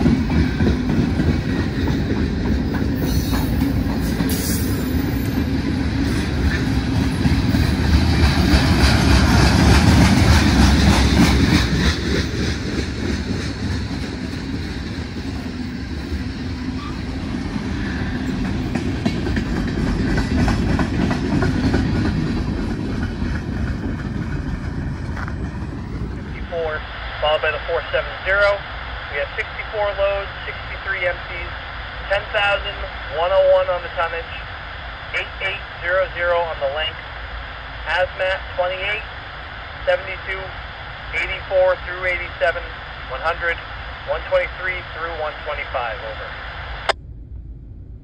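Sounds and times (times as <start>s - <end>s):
freight train wheels clacking: 0.0s - 25.9s.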